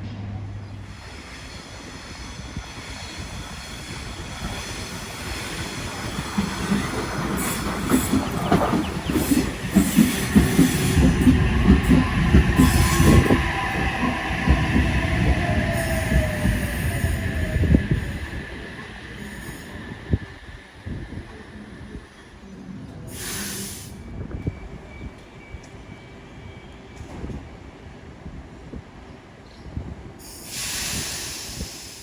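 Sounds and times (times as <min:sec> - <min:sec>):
train passing: 0:00.0 - 0:29.4
wheels clattering over rail joints: 0:05.7 - 0:14.6.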